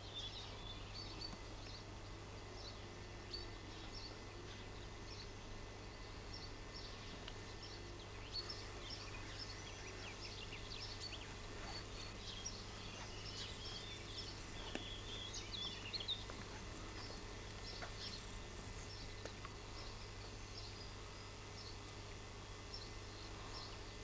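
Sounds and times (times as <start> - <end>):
birds chirping and twittering: 0.0 - 24.0
steady low hum: 0.0 - 24.0.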